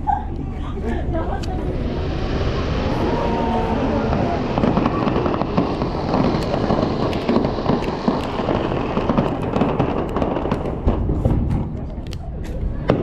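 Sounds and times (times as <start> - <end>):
low rumble of fireworks bursts: 0.0 - 13.0
fireworks crackling and popping: 1.4 - 13.0.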